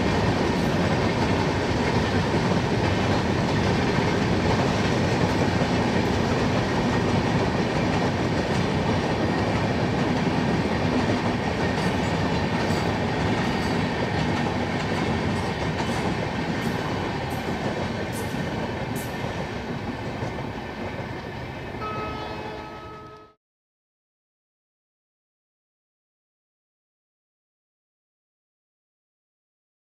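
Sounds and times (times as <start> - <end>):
train coaches rumbling past: 0.0 - 23.4.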